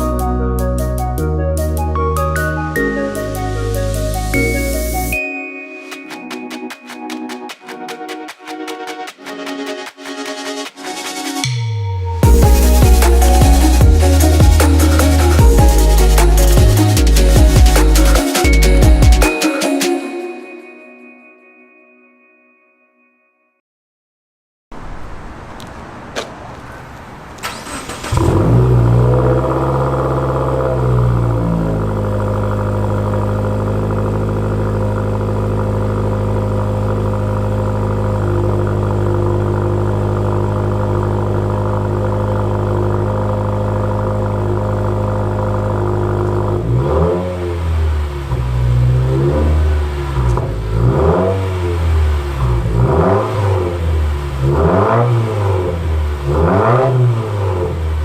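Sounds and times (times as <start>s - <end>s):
car engine starting and idling: 11.4s - 19.3s, 24.8s - 58.0s.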